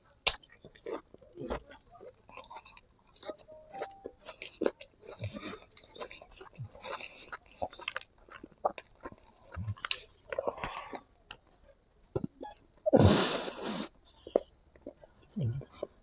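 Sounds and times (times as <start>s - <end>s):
wet chewing and smacking: 0.0s - 12.9s, 14.0s - 16.0s.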